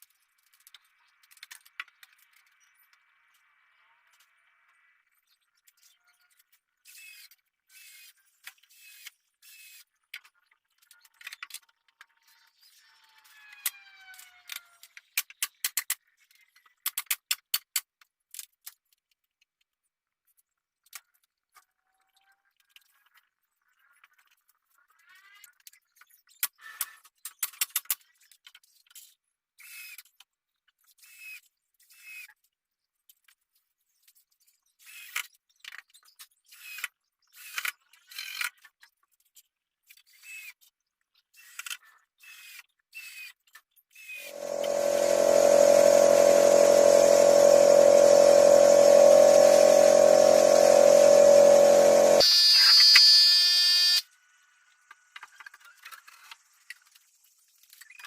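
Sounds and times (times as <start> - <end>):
power tool motor running: 44.3 - 52.2.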